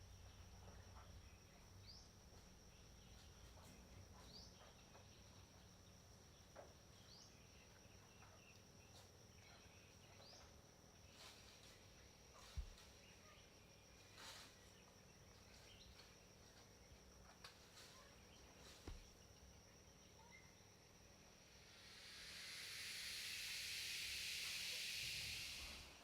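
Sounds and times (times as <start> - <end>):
high-pitched insect drone: 6.6 - 26.0.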